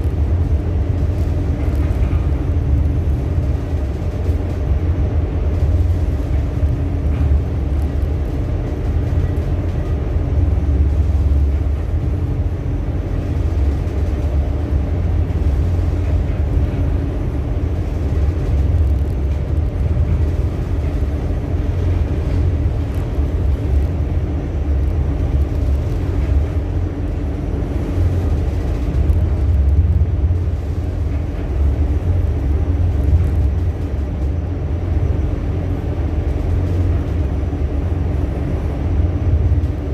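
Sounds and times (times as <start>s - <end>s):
ship engine droning: 0.0s - 39.9s.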